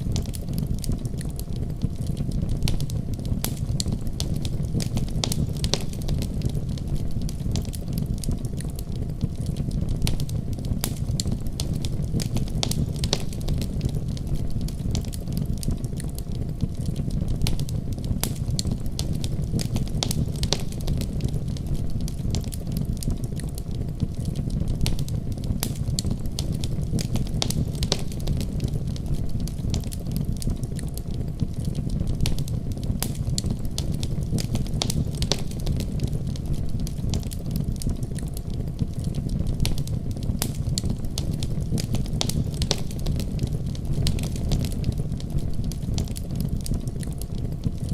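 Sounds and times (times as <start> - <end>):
wood fire crackling and popping: 0.0 - 47.9.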